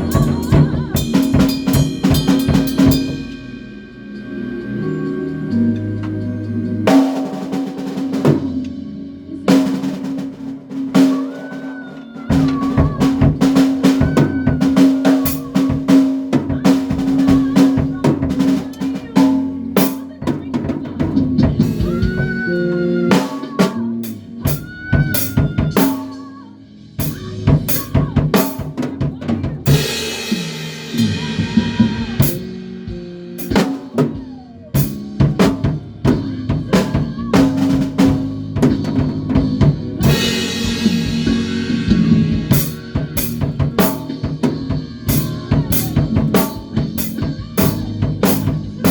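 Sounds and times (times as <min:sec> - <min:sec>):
cymbal crashes: 0:00.0 - 0:04.4
drum kit beat: 0:00.0 - 0:04.4, 0:06.0 - 0:48.9
bass: 0:00.0 - 0:11.2, 0:11.8 - 0:48.9
band playing live: 0:00.0 - 0:48.9.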